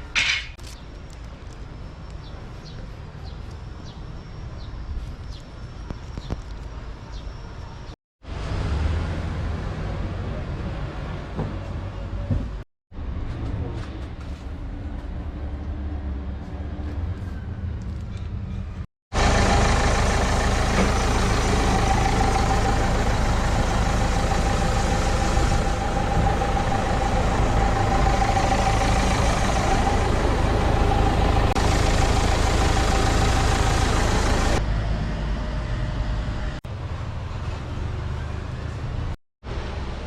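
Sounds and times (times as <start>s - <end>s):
vehicle engine running: 19.1s - 40.0s.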